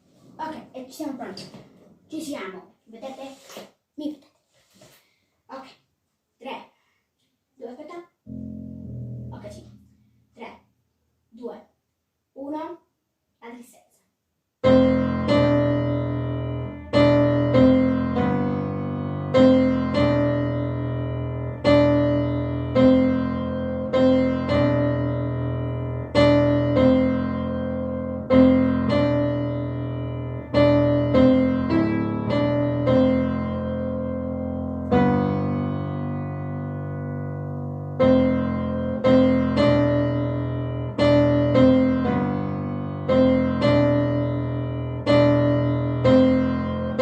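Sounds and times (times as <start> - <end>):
slow piano chords: 8.3 - 10.0, 14.6 - 47.0.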